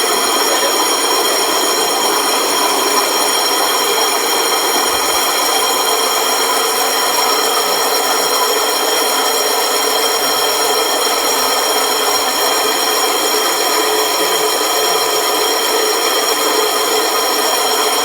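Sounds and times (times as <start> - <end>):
floor grinder running: 0.0 - 18.0.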